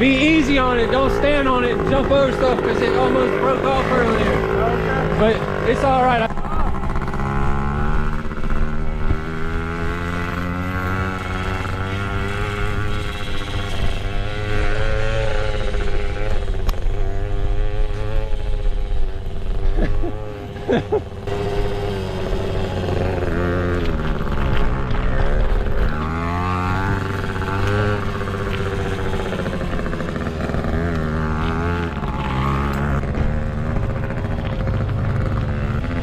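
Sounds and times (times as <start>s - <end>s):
small motorbike engine revving: 0.0s - 36.0s.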